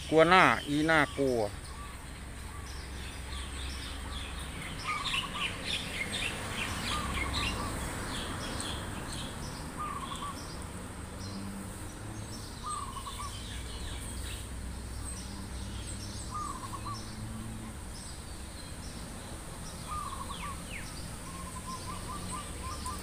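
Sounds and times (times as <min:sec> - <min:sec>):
warbling bird call: 0:00.0 - 0:07.9, 0:09.7 - 0:10.6, 0:12.6 - 0:14.4, 0:16.2 - 0:17.2, 0:19.8 - 0:23.0
birds chirping: 0:00.0 - 0:23.0.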